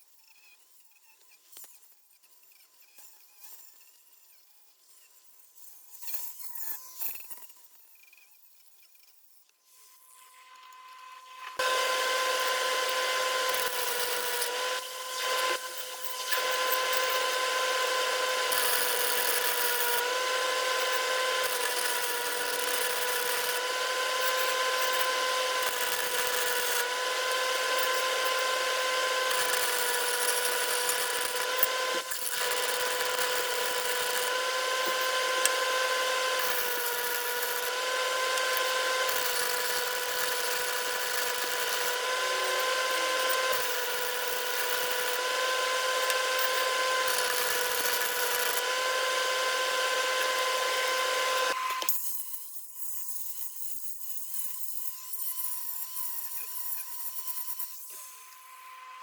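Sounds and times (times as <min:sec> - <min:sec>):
power tool motor running: 0:09.8 - 0:52.2.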